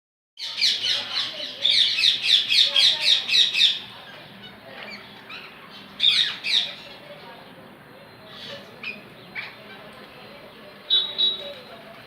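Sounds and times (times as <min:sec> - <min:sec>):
parrots squawking: 0:00.4 - 0:06.9.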